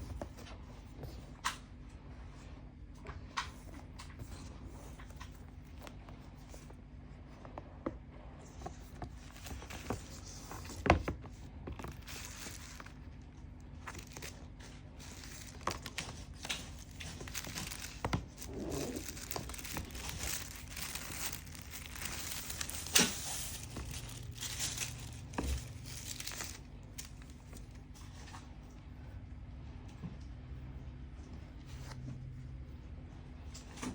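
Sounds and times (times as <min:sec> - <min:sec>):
packaging crinkling and rustling: 0:08.7 - 0:28.4
packaging tearing: 0:11.8 - 0:13.0, 0:13.8 - 0:27.6.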